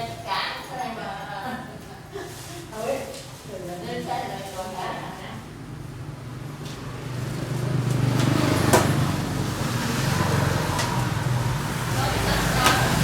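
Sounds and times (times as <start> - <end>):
vehicle engine humming: 5.6 - 13.0.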